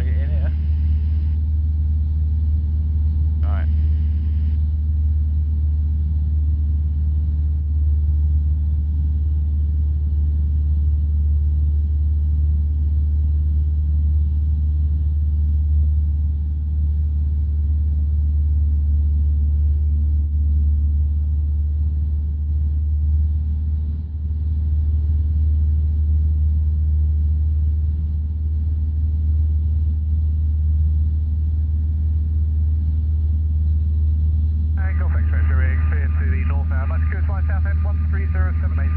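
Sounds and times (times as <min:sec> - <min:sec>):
light aircraft engine droning: 0:00.0 - 0:38.9.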